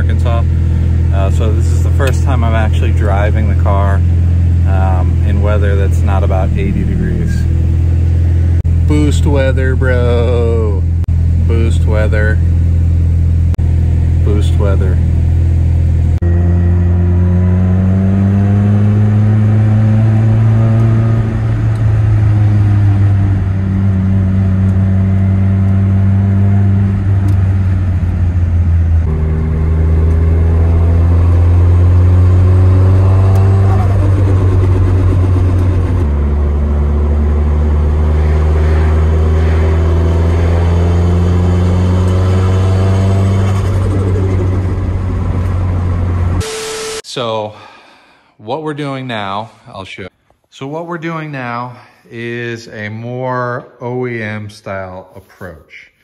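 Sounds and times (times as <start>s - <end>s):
car engine revving through gears: 14.2s - 47.0s.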